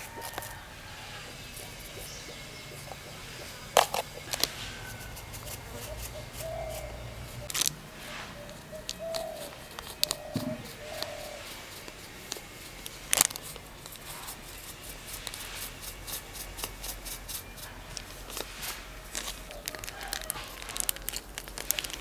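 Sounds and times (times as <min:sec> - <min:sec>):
kitchen utensils clicking and knocking: 0:00.0 - 0:07.8.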